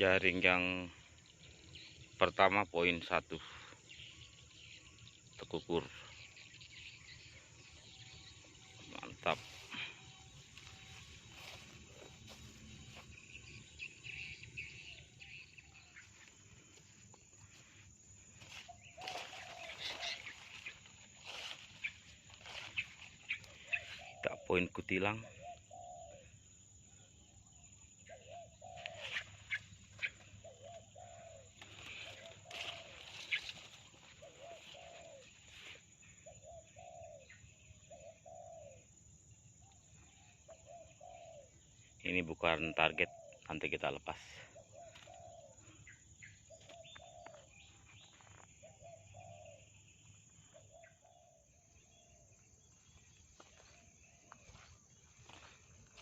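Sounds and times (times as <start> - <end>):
small bird chirping: 0.0 - 56.0
rustles: 16.0 - 24.1, 28.8 - 35.9
dove cooing: 18.4 - 24.5, 25.1 - 27.3, 28.0 - 38.9, 39.9 - 41.7, 42.7 - 43.5, 44.2 - 52.3.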